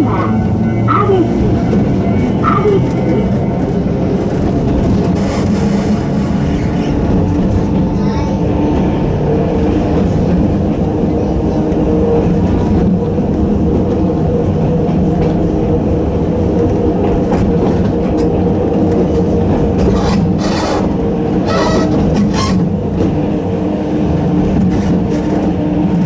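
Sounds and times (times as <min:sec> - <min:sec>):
train motors and gears droning: 0:00.0 - 0:26.0
train wheels rumbling on rails: 0:00.0 - 0:26.0
wheels clacking over rail joints: 0:16.6 - 0:23.2.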